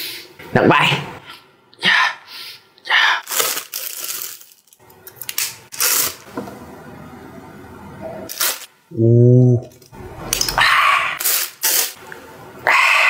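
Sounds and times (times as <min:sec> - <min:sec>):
rustling of packaging: 0:03.2 - 0:06.3, 0:08.3 - 0:08.7.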